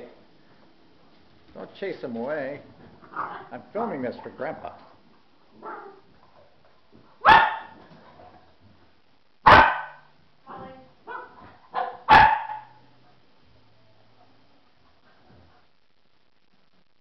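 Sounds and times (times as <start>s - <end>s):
dog barking: 5.6s - 6.0s, 7.2s - 7.8s, 9.4s - 10.1s, 11.1s - 12.8s
dog yipping: 11.1s - 12.8s.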